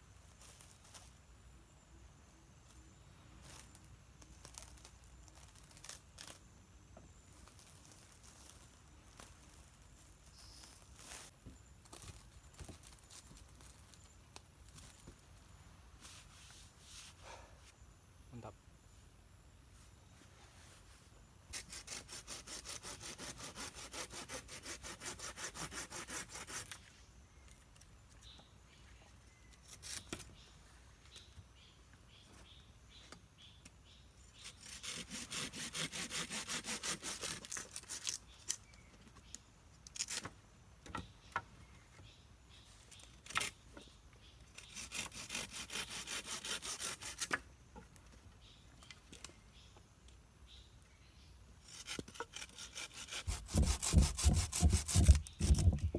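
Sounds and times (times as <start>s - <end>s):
hand saw cutting wood: 21.5s - 26.8s, 34.4s - 38.2s, 44.5s - 47.4s, 51.6s - 55.9s.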